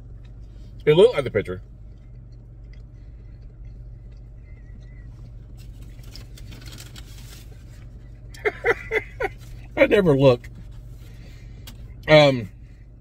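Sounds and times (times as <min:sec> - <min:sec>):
person chewing food: 0:00.0 - 0:00.8, 0:01.6 - 0:06.9
low hum inside a car: 0:00.0 - 0:13.0.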